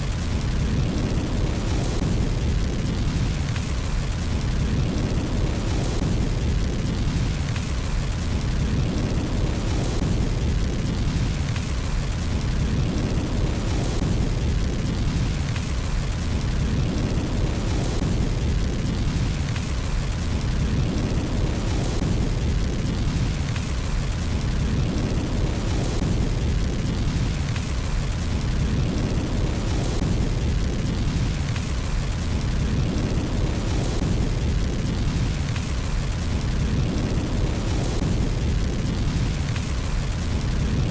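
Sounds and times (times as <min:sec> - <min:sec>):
fireplace fire roar: 0:00.0 - 0:40.9
hissing crackle bursts: 0:00.0 - 0:40.9.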